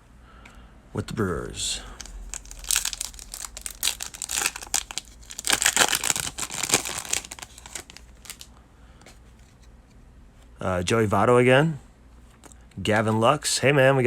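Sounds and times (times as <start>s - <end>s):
foil wrapper crinkling and tearing: 2.0s - 8.5s.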